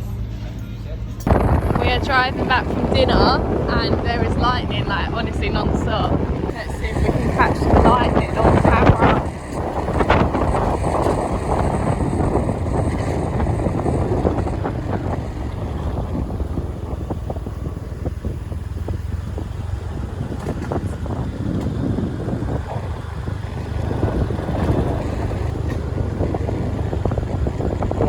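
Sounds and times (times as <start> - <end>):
engine and road rumble: 0.0 - 28.0
wind buffeting microphone: 1.2 - 28.0.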